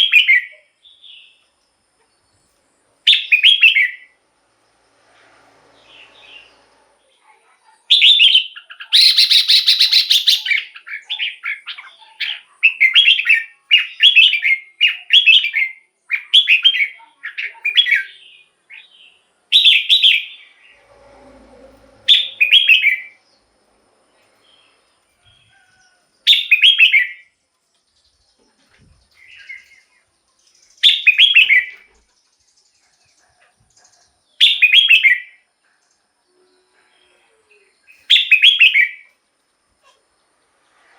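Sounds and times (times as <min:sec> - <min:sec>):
bird singing chirpy phrases: 0:02.3 - 0:04.1, 0:05.9 - 0:20.7, 0:26.3 - 0:39.1
harsh buzzy bird note: 0:20.0 - 0:23.7.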